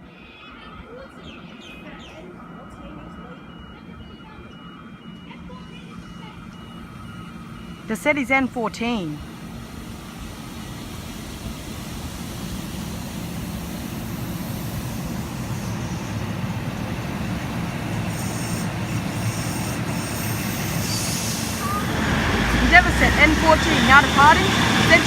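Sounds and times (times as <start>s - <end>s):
diesel railcar engine running: 0.0s - 25.0s.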